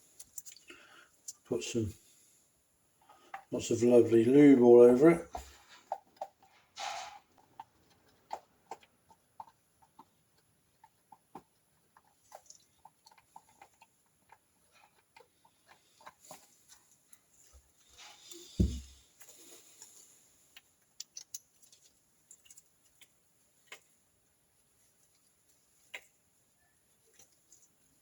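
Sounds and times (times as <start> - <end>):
louder knock: 18.6 - 18.8
small metal parts clicking: 21.0 - 22.6.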